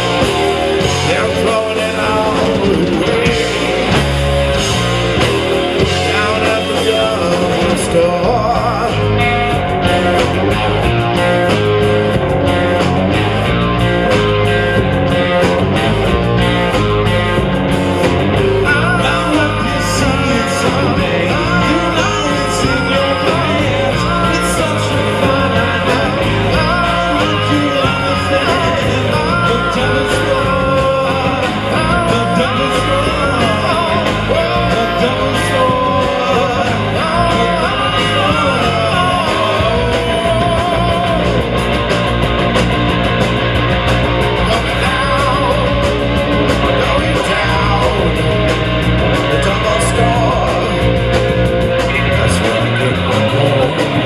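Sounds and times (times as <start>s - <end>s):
person singing: 0.0s - 4.1s, 5.8s - 9.4s, 18.6s - 41.8s, 44.3s - 54.0s
guitar: 0.0s - 54.0s
rock band playing live: 0.0s - 54.0s.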